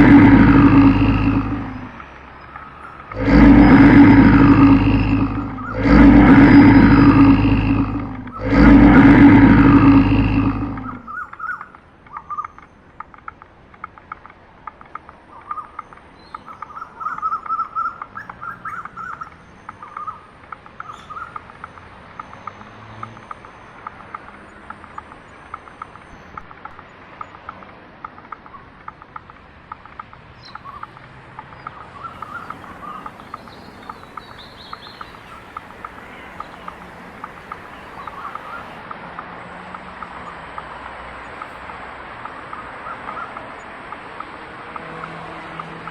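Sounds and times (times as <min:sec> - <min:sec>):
loud animal roar: 0:00.0 - 0:02.0, 0:02.9 - 0:11.2, 0:31.7 - 0:38.8
small birds chirping: 0:00.0 - 0:38.9.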